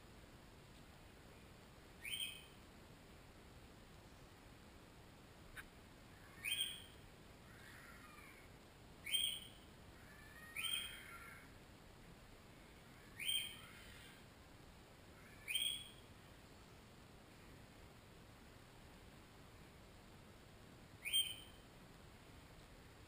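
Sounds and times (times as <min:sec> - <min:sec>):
faint steady hiss: 0:00.0 - 0:23.0
bird short calls: 0:06.2 - 0:06.9, 0:09.1 - 0:11.4, 0:13.0 - 0:14.2, 0:15.2 - 0:16.0.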